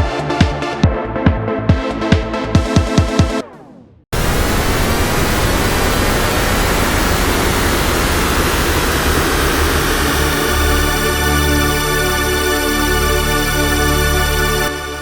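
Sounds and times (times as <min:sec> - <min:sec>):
synthesizer rushing noise: 0:04.2 - 0:12.4.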